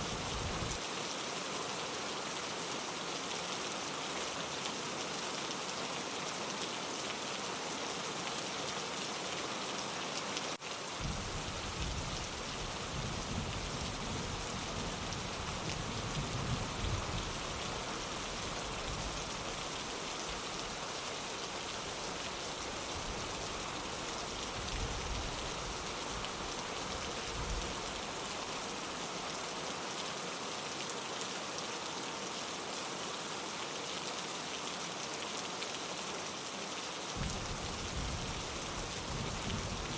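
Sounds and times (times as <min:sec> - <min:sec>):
rain on a window: 0:00.0 - 0:39.9
rolling thunder rumble: 0:37.2 - 0:38.2.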